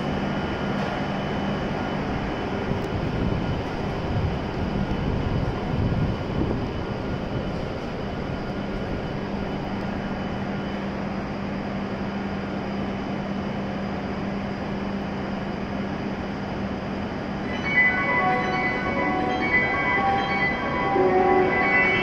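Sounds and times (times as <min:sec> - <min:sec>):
stationary train hum: 0:00.0 - 0:22.0
chiming station melody: 0:17.4 - 0:22.0
low steady tone: 0:17.4 - 0:22.0.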